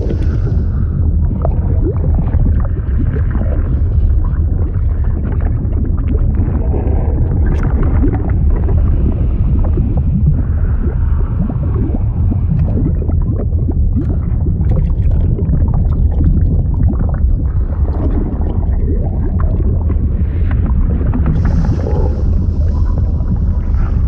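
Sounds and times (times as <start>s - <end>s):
liquid gurgling and bubbling: 0.0s - 24.0s
low rumble: 0.0s - 24.0s.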